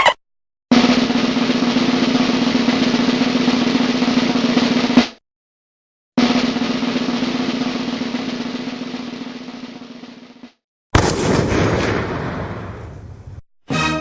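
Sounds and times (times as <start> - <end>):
drum roll: 0.7 - 5.2, 6.2 - 12.4.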